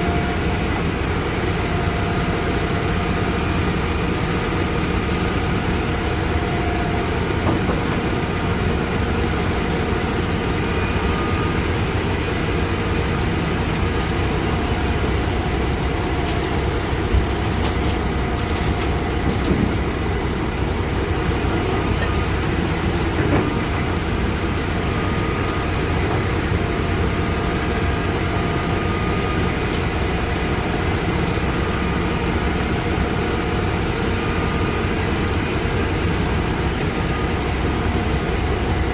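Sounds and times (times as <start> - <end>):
diesel engine running under load: 0.0 - 38.9
excavator bucket clunks: 7.4 - 8.2, 16.2 - 19.8, 23.1 - 23.8.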